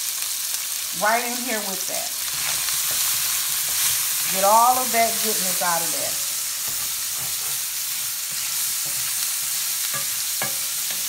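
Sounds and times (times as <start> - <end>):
vegetables sizzling in a skillet: 0.0 - 11.0
wooden spatula scraping and tapping: 2.4 - 4.0, 6.6 - 7.7, 8.3 - 9.3, 9.9 - 11.0.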